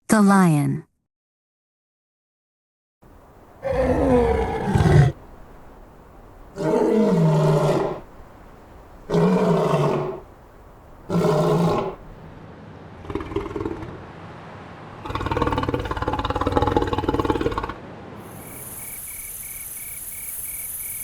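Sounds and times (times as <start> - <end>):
lion roaring: 3.6 - 5.2, 6.4 - 10.3, 10.9 - 12.4, 13.0 - 14.1, 15.0 - 17.8.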